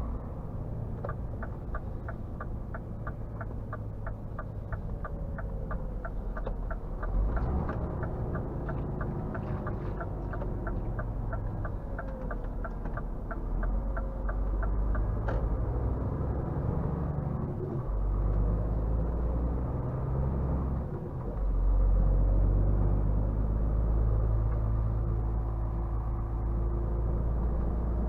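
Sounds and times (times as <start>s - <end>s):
diesel truck engine running: 0.0s - 19.0s
turn signal ticking: 0.8s - 16.5s.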